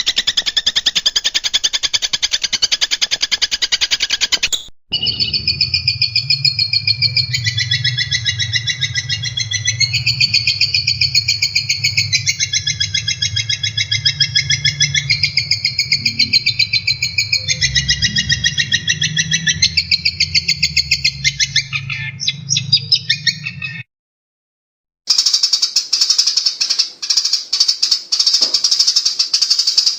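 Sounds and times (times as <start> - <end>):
shrike singing rapid trill: 4.9 - 23.2
steady low hum: 5.1 - 21.9.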